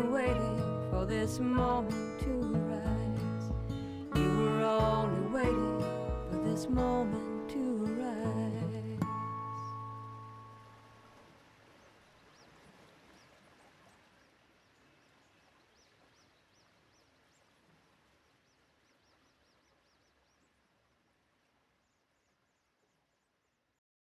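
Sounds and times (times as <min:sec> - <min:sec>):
guitar note: 0:00.0 - 0:10.5
faint bird chirps: 0:11.7 - 0:21.0.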